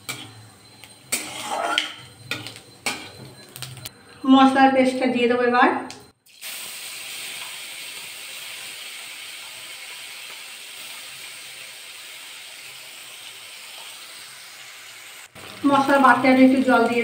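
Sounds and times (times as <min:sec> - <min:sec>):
spice paste sizzling in oil: 0:06.3 - 0:17.0.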